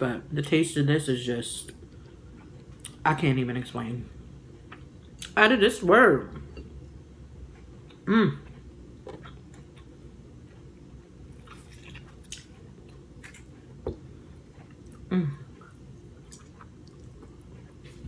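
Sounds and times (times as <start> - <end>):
wet chewing sounds: 11.3 - 18.0.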